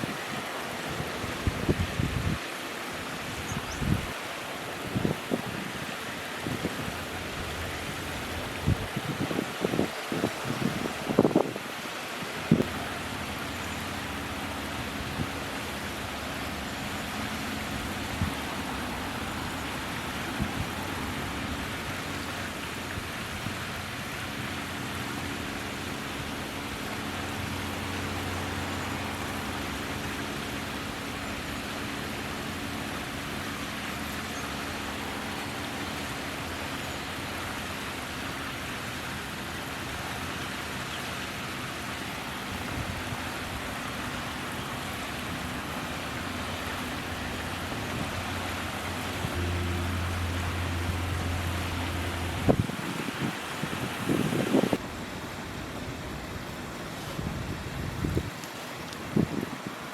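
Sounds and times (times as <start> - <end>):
distant road traffic: 12.6 - 59.9.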